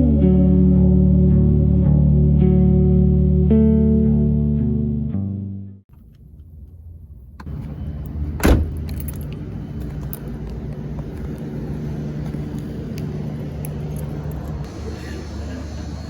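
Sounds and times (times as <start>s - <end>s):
car hum: 5.9s - 16.0s
clicks and jangling: 8.0s - 10.6s.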